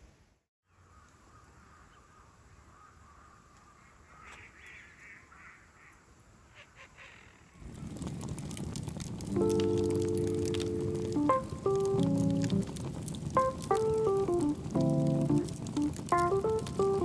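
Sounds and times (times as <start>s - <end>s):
quiet outdoor ambience: 0.0s - 17.0s
faint bird calling: 0.7s - 7.6s.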